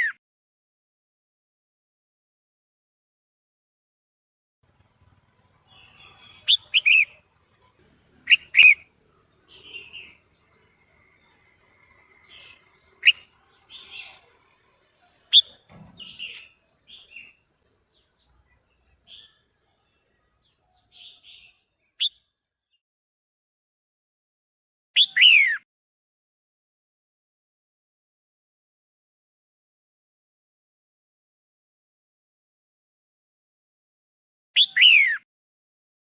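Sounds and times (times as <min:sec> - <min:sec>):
bird chirping and chattering: 0:05.1 - 0:19.4.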